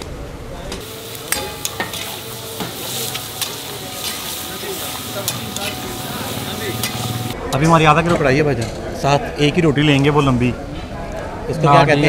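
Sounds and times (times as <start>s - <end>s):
meat sizzling in a wok: 0.8s - 7.4s
utensil scraping a pan: 0.8s - 7.4s.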